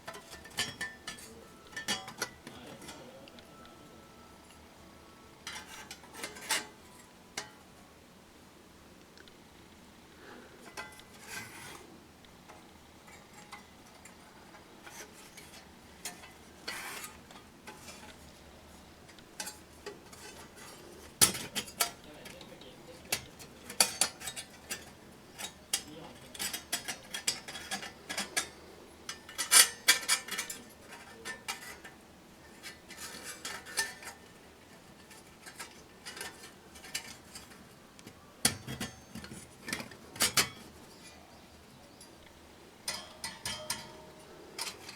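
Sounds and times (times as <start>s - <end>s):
metal items clinking: 42.8s - 44.9s.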